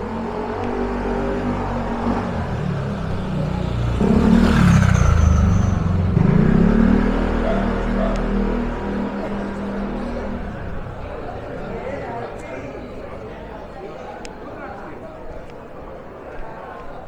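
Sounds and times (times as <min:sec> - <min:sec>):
vehicle engine passing: 0:00.0 - 0:13.9.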